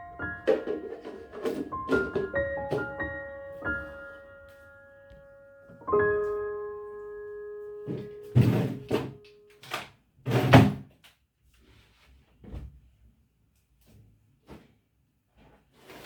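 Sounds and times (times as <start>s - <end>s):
soft piano notes: 0.0s - 9.6s.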